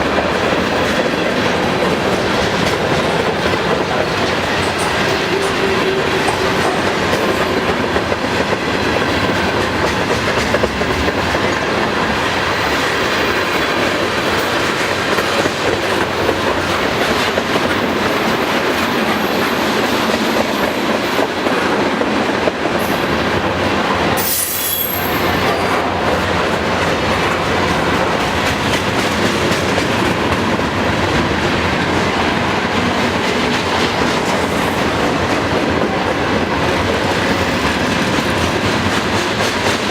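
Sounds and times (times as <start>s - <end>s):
train wheels clattering over rail joints: 0.0s - 11.7s
high wheel squeal: 24.2s - 25.5s.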